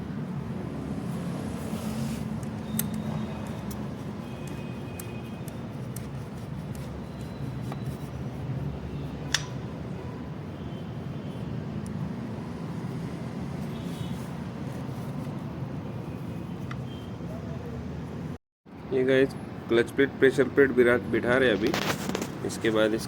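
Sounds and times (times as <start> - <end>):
workshop low hum: 0.0 - 23.0
tools clicking: 2.4 - 3.8.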